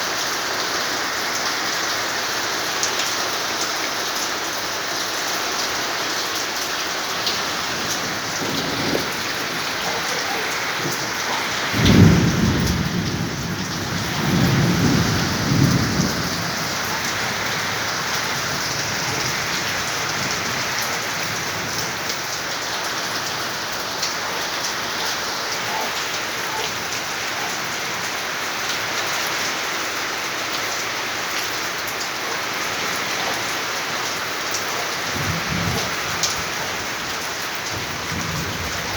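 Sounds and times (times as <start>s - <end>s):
heavy rain falling: 0.0s - 38.9s
rumble of thunder: 7.2s - 22.4s, 35.0s - 38.9s.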